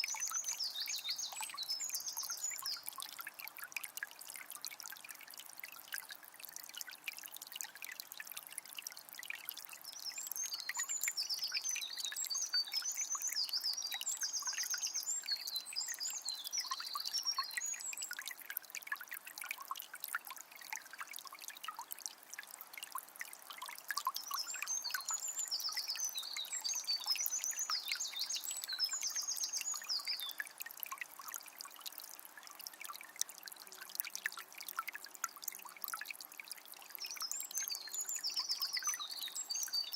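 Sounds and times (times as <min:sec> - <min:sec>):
songbird singing: 0:00.0 - 0:03.0, 0:09.9 - 0:18.3, 0:24.0 - 0:30.6, 0:37.0 - 0:39.9
spring water trickling: 0:00.0 - 0:39.9.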